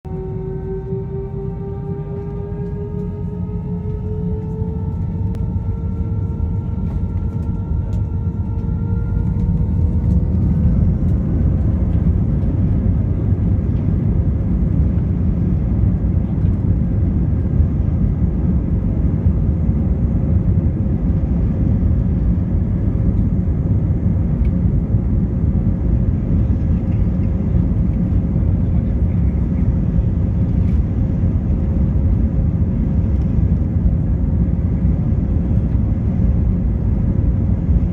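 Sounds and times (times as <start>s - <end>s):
jet engines spooling up: 0.1s - 14.0s.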